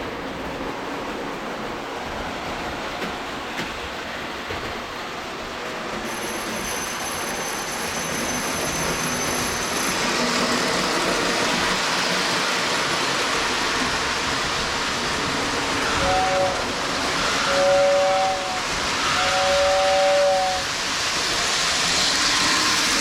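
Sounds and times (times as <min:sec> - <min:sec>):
toy train rumbling on track: 0:06.0 - 0:23.0.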